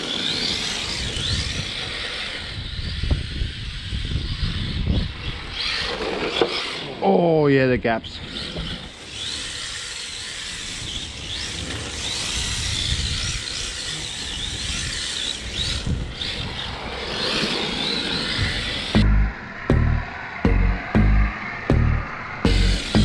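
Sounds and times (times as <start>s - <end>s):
electric motor whining: 0.0s - 7.0s, 8.0s - 23.0s
music: 19.0s - 23.0s.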